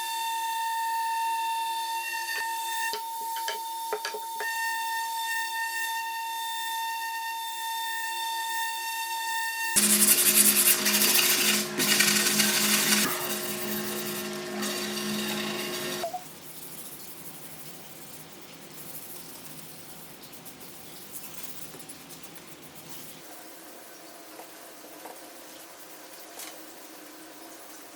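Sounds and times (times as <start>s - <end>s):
power tool motor humming: 9.8s - 16.1s.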